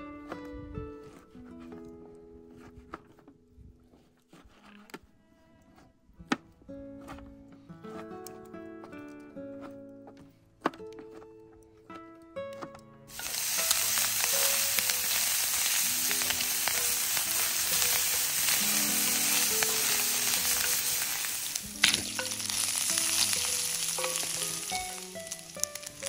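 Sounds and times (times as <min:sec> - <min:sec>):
meat sizzling in hot oil: 0:13.1 - 0:26.0.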